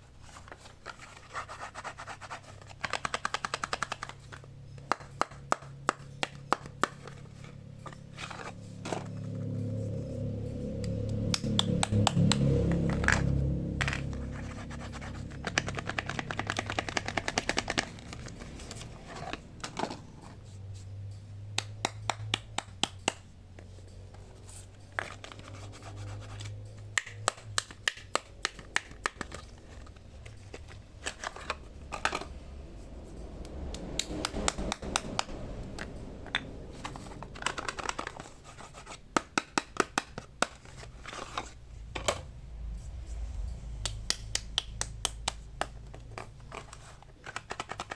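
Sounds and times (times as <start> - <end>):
sharp clicks and taps: 43.8 - 46.3.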